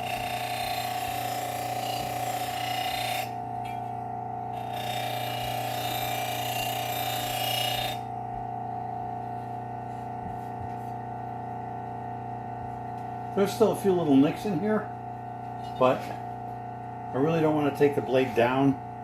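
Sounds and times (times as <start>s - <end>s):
blade grinding on abrasive belt: 0.0s - 8.1s
belt sharpener motor whine: 0.0s - 9.5s, 12.9s - 19.0s.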